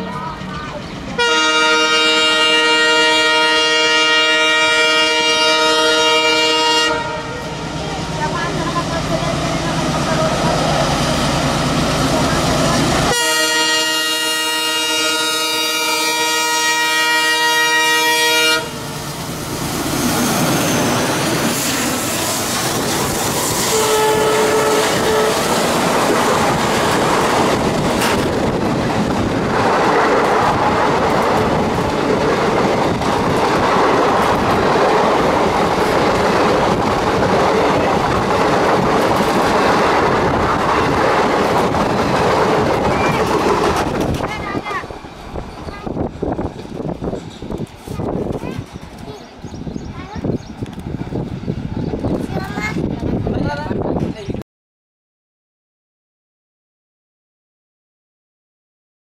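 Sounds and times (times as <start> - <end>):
train wheels rumbling on track: 0.0 - 54.4
locomotive horn: 1.2 - 7.6, 13.0 - 18.9, 23.5 - 25.8.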